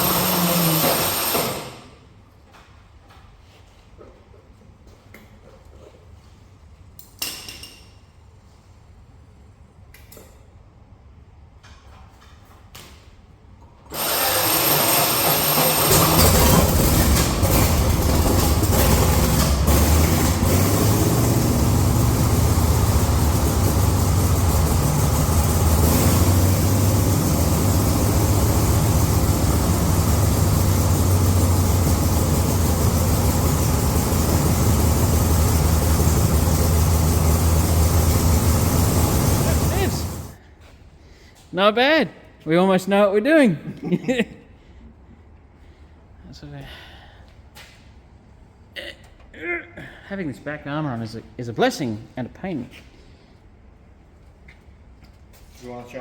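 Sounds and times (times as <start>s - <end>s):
engine starting and droning: 0.0s - 2.0s, 13.9s - 40.4s.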